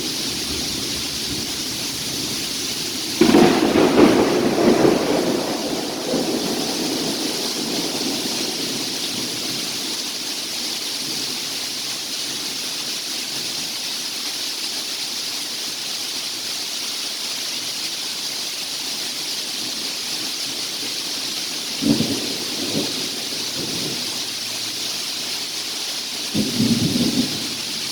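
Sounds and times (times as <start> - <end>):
sharp thunder cracks: 0.0 - 10.2
thunder rumble: 0.0 - 10.6, 20.8 - 24.3, 26.4 - 27.9
heavy rain: 0.0 - 27.9.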